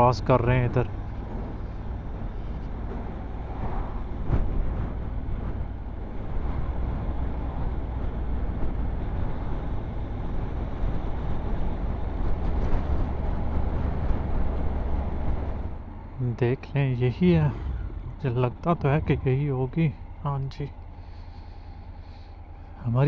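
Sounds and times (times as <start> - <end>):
road vehicle rumble: 0.0 - 23.0.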